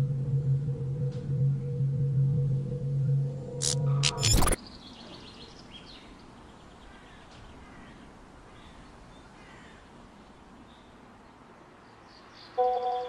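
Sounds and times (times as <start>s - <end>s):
faint bird calls: 4.6s - 10.9s.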